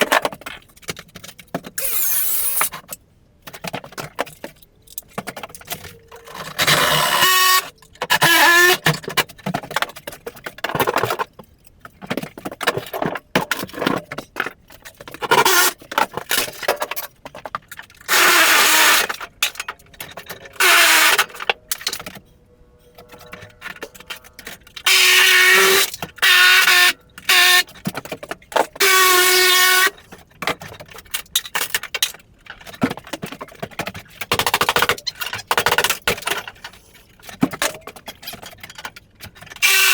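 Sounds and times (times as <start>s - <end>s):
wood screeching as torn out: 1.8s - 2.7s, 6.1s - 8.8s, 20.5s - 21.4s, 23.0s - 27.7s, 39.6s - 39.9s.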